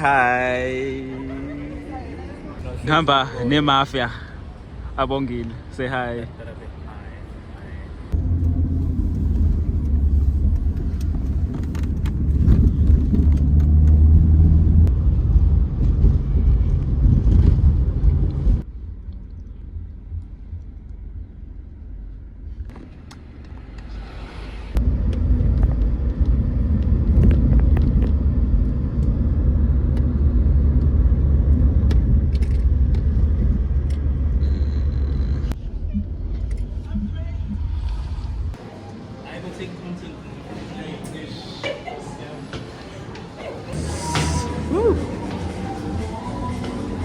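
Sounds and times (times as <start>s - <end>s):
car rumble inside cabin: 8.1s - 22.7s, 24.8s - 38.6s.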